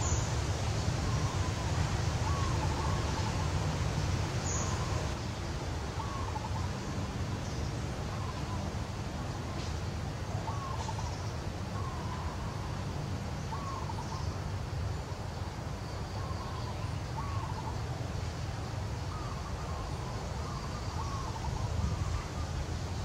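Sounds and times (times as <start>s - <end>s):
bird chirping: 0.0s - 5.2s.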